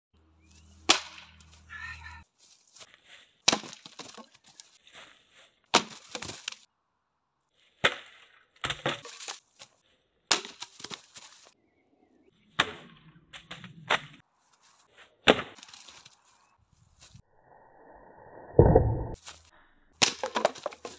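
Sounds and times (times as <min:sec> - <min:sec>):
dry branches snapping: 0:00.8 - 0:01.6, 0:03.4 - 0:04.7, 0:05.7 - 0:06.7, 0:10.3 - 0:11.4, 0:20.0 - 0:20.9.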